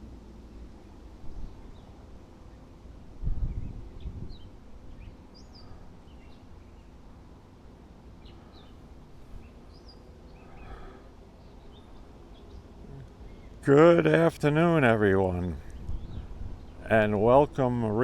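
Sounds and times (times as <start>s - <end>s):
low outdoor rumble: 0.0s - 18.0s
birds chirping: 3.4s - 7.0s, 8.0s - 18.0s.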